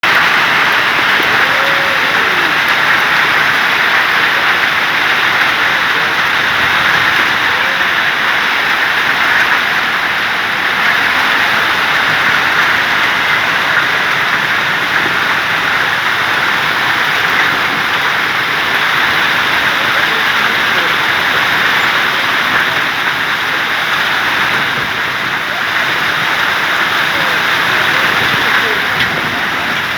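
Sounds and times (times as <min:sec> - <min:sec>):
torrential rain pouring: 0:00.0 - 0:29.9.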